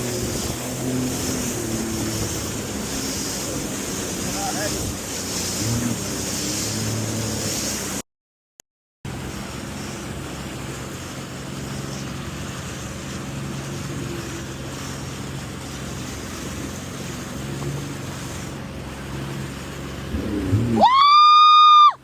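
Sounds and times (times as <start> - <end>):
jet ski engine running: 0.0 - 8.0, 9.1 - 22.0
rush of wind and water: 0.0 - 8.0, 9.1 - 22.0.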